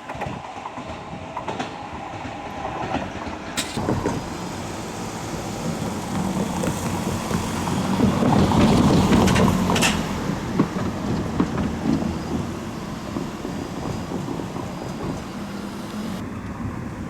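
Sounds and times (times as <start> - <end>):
train rumbling past: 0.0 - 17.0
irregular knocks: 3.8 - 16.2.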